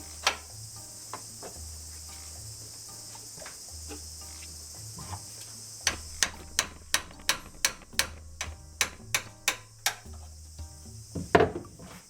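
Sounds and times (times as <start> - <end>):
insects chirring: 0.0 - 12.0
sharp metal taps: 5.9 - 10.3.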